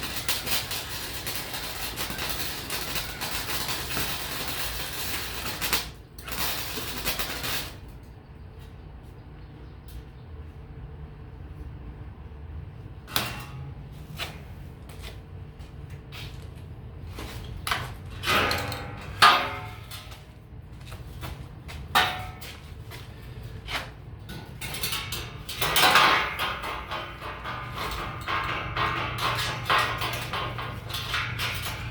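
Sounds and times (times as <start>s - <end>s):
steady low hum: 0.0s - 31.9s
scrap steel clanking: 23.2s - 31.9s.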